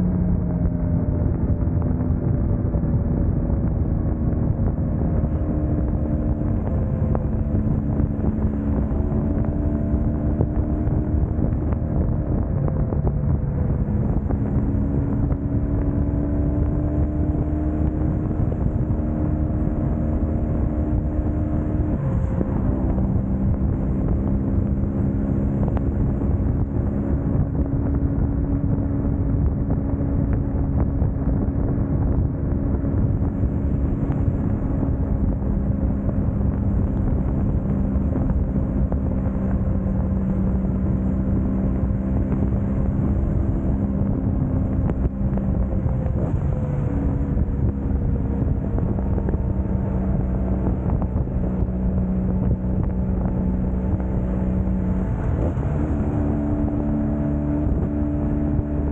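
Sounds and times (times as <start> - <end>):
motorcycle engine cruising: 0.0 - 58.9
road noise: 0.0 - 58.9
wind noise: 0.0 - 58.9.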